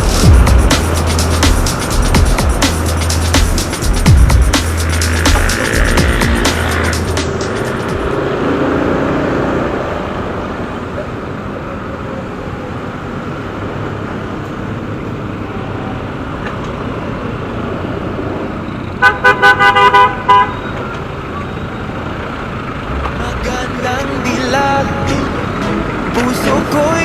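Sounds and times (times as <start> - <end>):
road traffic hum: 0.0 - 27.0
vehicle horn short toots: 19.0 - 20.8.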